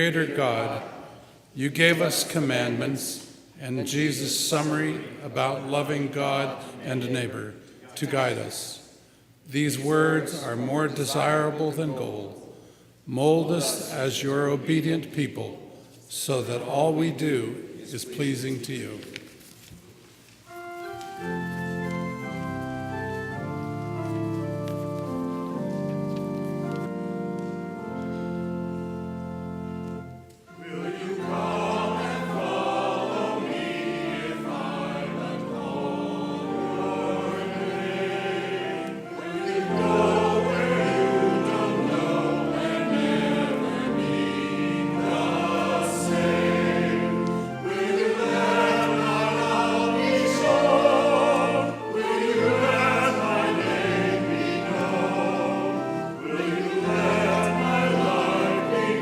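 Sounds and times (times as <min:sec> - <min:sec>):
church choir singing: 0:00.0 - 0:15.5, 0:16.2 - 0:19.0, 0:20.5 - 0:59.0
organ chord: 0:20.5 - 0:59.0.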